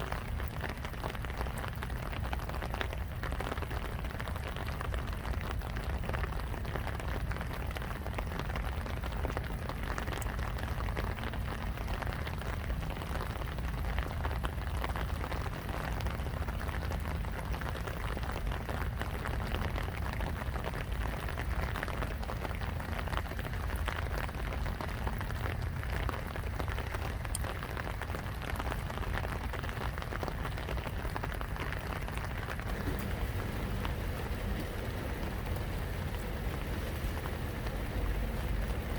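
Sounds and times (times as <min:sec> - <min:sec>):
steady rain hiss: 0:00.0 - 0:38.9
low rumble: 0:32.4 - 0:38.9.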